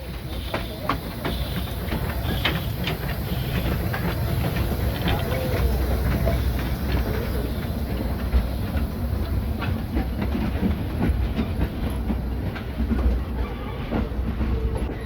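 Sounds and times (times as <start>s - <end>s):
steam train low rumble: 0.0s - 15.0s
train wheels clacking over rail joints: 0.0s - 15.0s.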